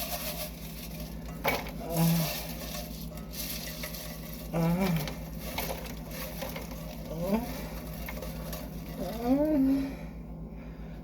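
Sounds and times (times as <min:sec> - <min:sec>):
low electrical hum: 0:00.0 - 0:11.0
person humming with enjoyment: 0:01.8 - 0:02.4, 0:04.5 - 0:05.2, 0:09.0 - 0:10.0.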